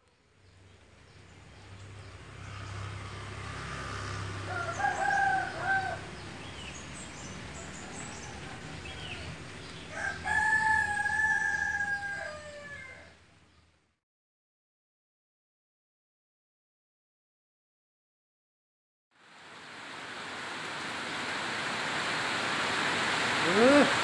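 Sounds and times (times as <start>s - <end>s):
rooster crowing: 4.4s - 6.2s, 7.5s - 13.2s
steady background hiss: 19.2s - 24.0s.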